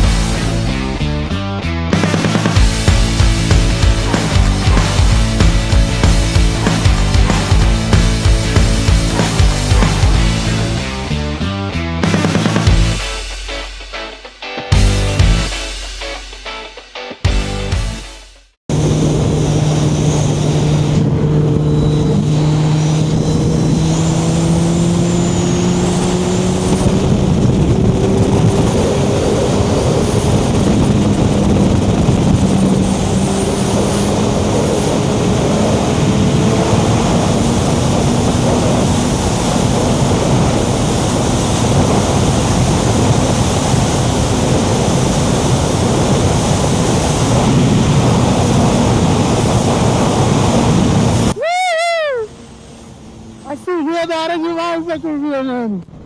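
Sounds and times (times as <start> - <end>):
motorcycle engine running: 2.0 - 11.1, 18.7 - 51.3
wind rush: 2.2 - 11.1, 18.7 - 55.2.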